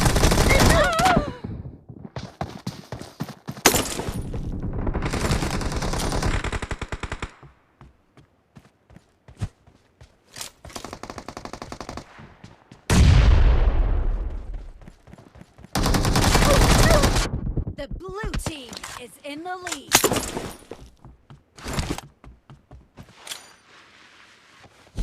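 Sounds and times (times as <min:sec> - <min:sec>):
video game gunfire: 0:15.8 - 0:18.5.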